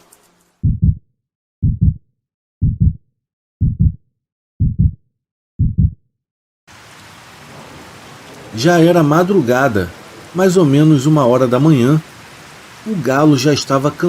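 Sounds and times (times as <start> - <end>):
heartbeat thumps: 0.6 - 6.1
rain hiss: 6.7 - 14.0.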